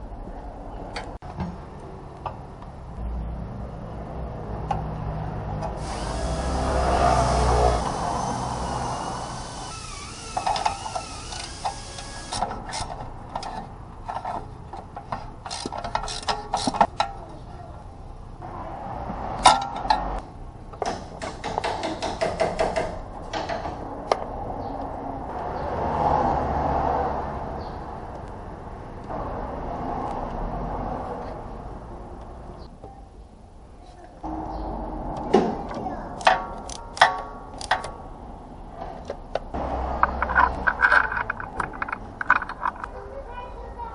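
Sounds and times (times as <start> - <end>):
steady background noise: 0.0 - 25.9, 27.0 - 43.9
sharp knocks: 20.8 - 23.8.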